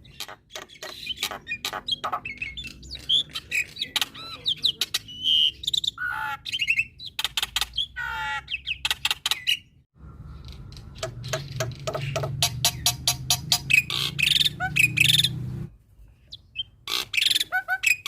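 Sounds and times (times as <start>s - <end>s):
starling singing whistles and rattles: 0.0s - 8.0s.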